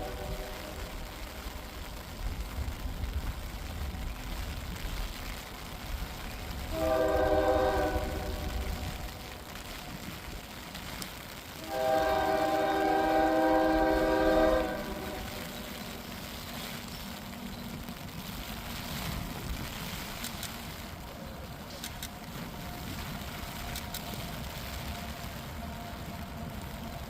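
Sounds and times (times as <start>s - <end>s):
low rumble of train: 0.0s - 27.0s
locomotive air horn blast: 6.7s - 8.8s, 11.6s - 15.8s.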